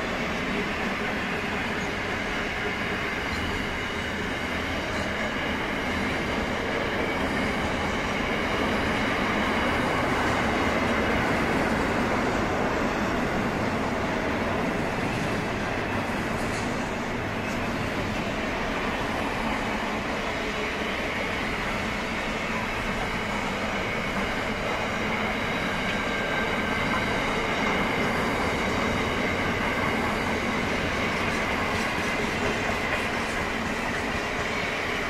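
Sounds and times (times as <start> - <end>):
train wagons rumbling on rails: 0.0 - 35.0.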